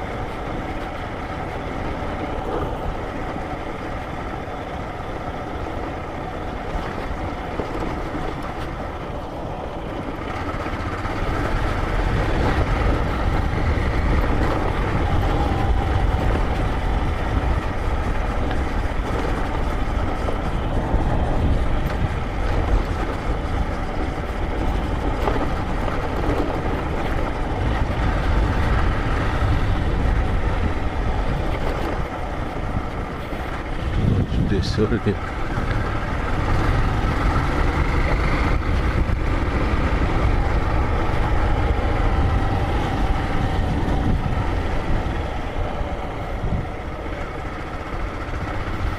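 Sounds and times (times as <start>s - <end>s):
motorcycle engine running: 0.0s - 48.9s
wind rumble on microphone: 0.0s - 48.9s.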